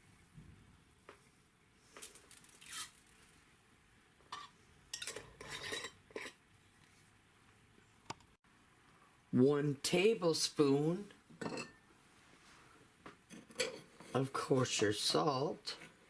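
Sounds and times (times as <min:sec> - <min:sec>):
utensils clinking on saucepan: 0:04.3 - 0:06.4, 0:11.4 - 0:11.8.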